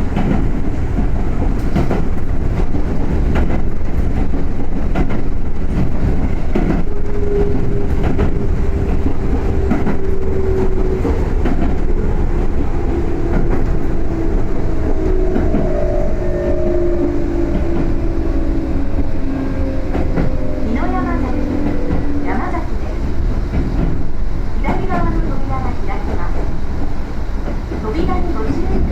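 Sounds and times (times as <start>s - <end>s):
rail-joint clicks: 0.0s - 28.9s
train interior rumble: 0.0s - 28.9s
train motor whine: 6.7s - 22.8s.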